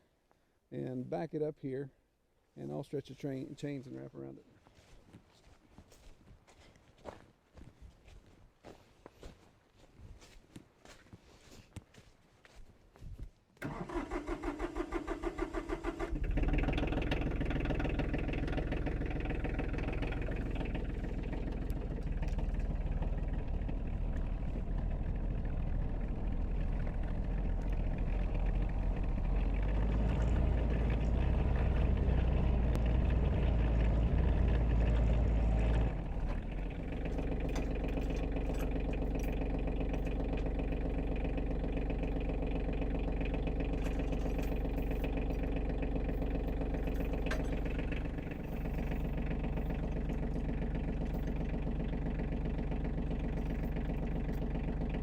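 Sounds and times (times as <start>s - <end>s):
tractor engine running: 13.6s - 55.0s
tractor starter cranking: 13.6s - 55.0s.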